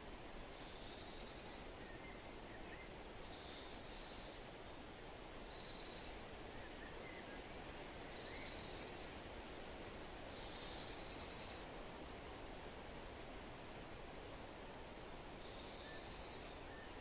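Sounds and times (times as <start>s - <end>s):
faint bird chirps: 0.5s - 4.6s, 5.4s - 11.7s, 15.2s - 17.0s.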